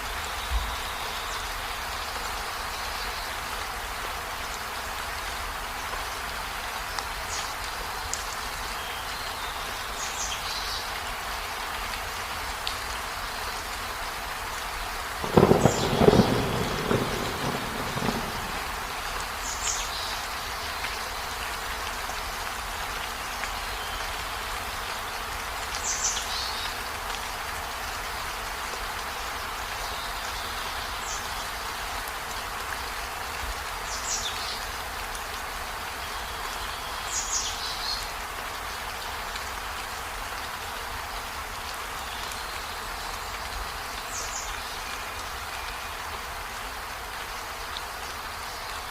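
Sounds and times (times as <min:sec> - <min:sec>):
steady rain: 0:00.0 - 0:48.9
thunder rumbling: 0:15.2 - 0:19.4.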